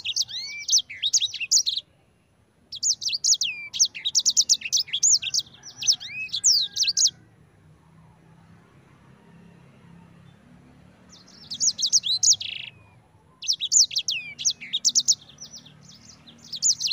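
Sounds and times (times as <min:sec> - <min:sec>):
bird singing: 0:00.0 - 0:08.8, 0:09.4 - 0:16.9.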